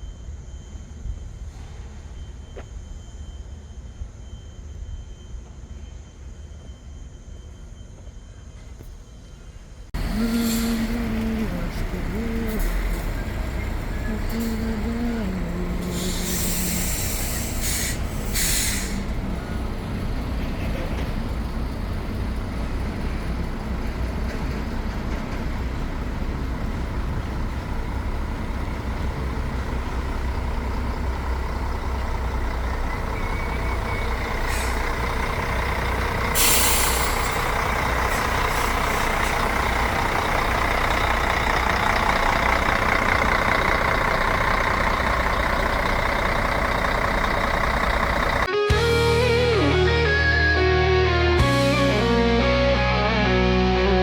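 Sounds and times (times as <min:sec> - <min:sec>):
air brake hiss: 0:01.4 - 0:02.2, 0:10.2 - 0:11.0, 0:15.8 - 0:19.2, 0:34.4 - 0:35.0, 0:36.3 - 0:39.5
truck diesel engine running: 0:09.9 - 0:54.0.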